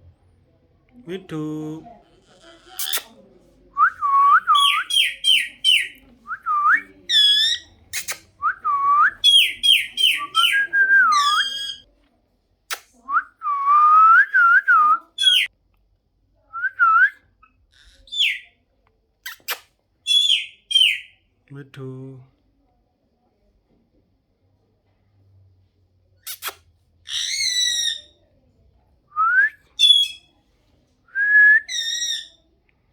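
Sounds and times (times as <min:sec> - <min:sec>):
parrot whistling: 0:03.8 - 0:11.8, 0:14.4 - 0:15.5, 0:20.1 - 0:21.1, 0:29.8 - 0:30.3, 0:31.2 - 0:32.4.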